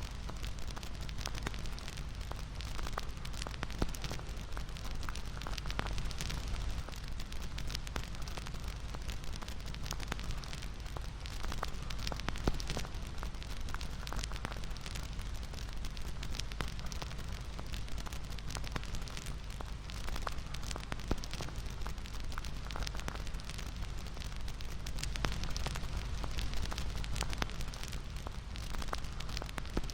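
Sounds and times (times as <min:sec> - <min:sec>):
bonfire hissing and rumbling: 0:00.0 - 0:29.9
fire pops and snaps: 0:00.0 - 0:29.9.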